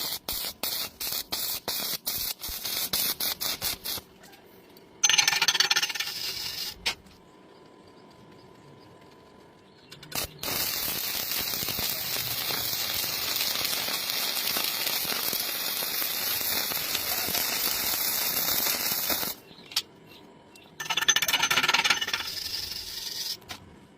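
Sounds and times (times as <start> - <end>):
arc welding crackle: 0.0 - 4.2, 5.1 - 7.1, 9.9 - 19.4, 20.9 - 23.6
loud rasping burst: 10.2 - 19.4.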